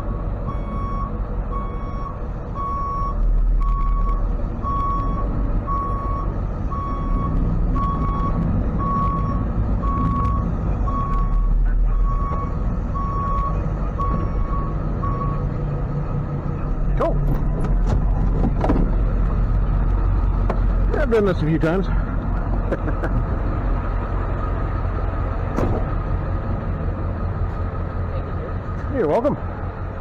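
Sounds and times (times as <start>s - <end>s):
truck engine idling: 0.0s - 30.0s
reversing alarm beeping: 0.5s - 15.5s.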